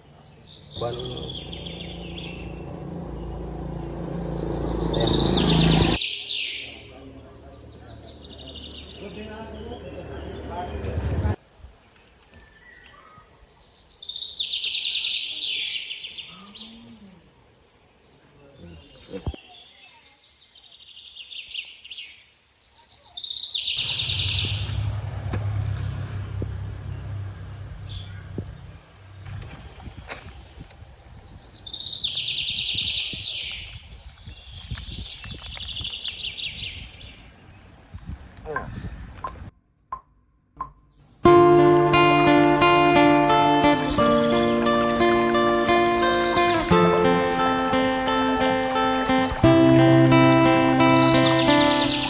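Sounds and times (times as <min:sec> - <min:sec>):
small birds chirping: 0:00.0 - 0:52.0
songbird trilling: 0:00.5 - 0:03.3, 0:22.9 - 0:24.8, 0:50.1 - 0:52.0
loud low rumble: 0:00.8 - 0:06.0, 0:23.8 - 0:29.2.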